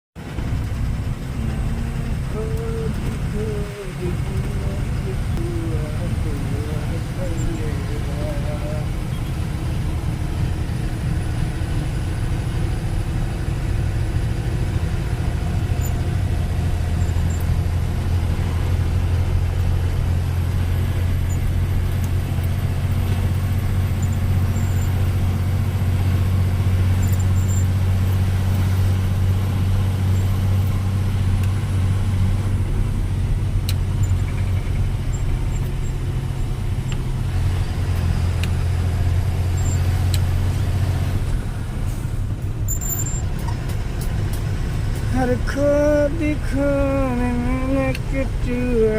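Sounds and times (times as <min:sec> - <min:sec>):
heavy vehicle engine drone: 0:00.2 - 0:48.9.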